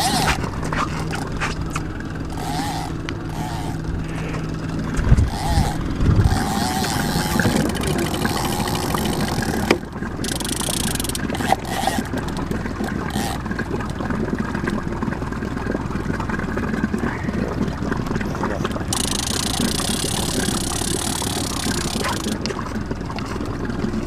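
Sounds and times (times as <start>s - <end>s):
boat motor running: 0.0s - 24.0s.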